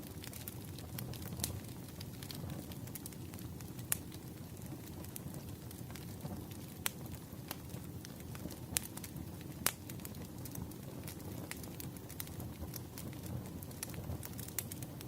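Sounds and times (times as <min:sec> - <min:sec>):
sharp pops of fire: 0:00.0 - 0:15.0
wood fire crackling: 0:00.0 - 0:15.0.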